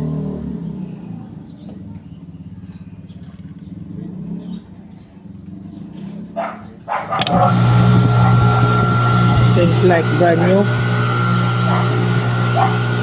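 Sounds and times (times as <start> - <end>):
low pulsing machine hum: 7.2 - 13.0.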